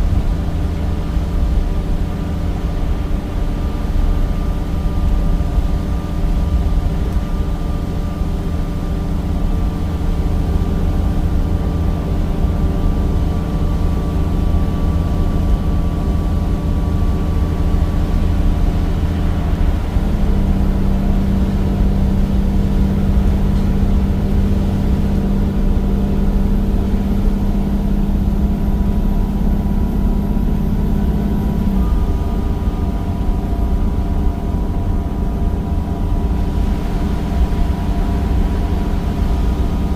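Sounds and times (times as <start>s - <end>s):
bus engine droning: 0.0s - 39.9s.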